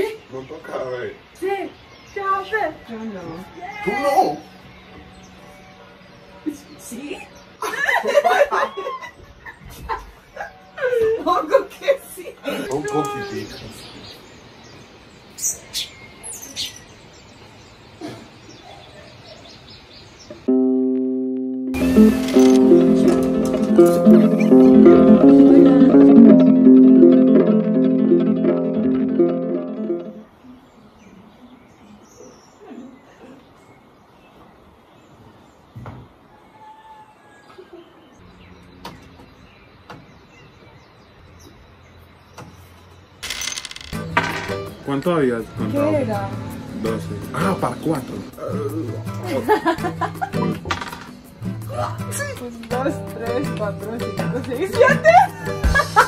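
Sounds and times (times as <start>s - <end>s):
birds chirping: 0.0s - 20.8s, 29.7s - 51.4s.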